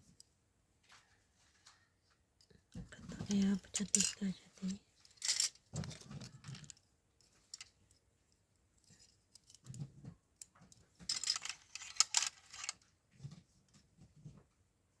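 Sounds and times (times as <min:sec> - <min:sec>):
plastic clips clicking and clattering: 0:05.1 - 0:06.8, 0:11.0 - 0:12.8.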